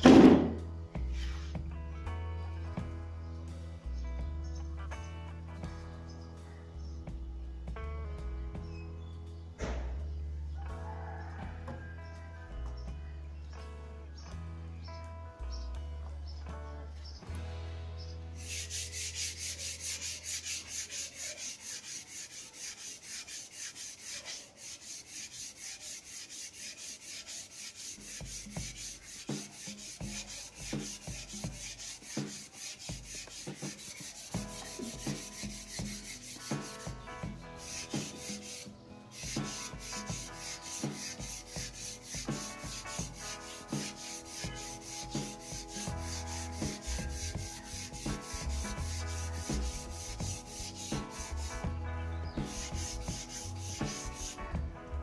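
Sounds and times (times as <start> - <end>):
sandpaper rasping on wood: 18.4 - 54.5.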